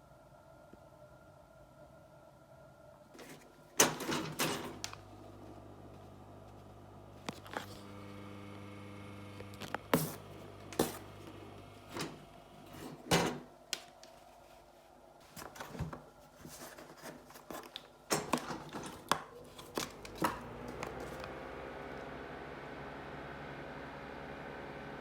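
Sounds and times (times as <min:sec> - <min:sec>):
fan motor humming: 0:03.8 - 0:13.4, 0:18.1 - 0:25.0.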